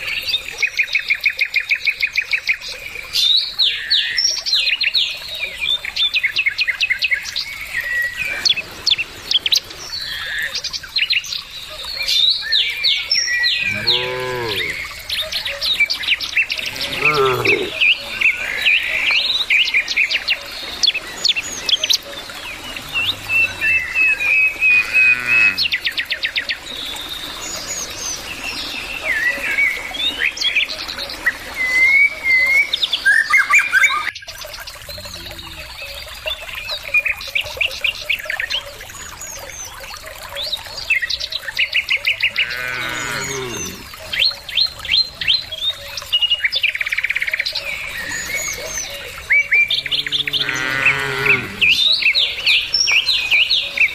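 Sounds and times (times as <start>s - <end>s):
cattle mooing: 13.6s - 14.8s, 16.6s - 18.2s, 24.7s - 25.8s, 42.3s - 43.9s, 49.7s - 51.8s.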